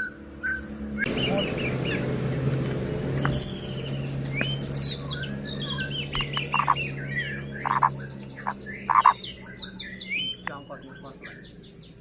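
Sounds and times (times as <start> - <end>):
harsh rasping bird notes: 0.0 - 11.5
songbird whistling song: 0.0 - 12.0
bird clicks: 6.1 - 6.8.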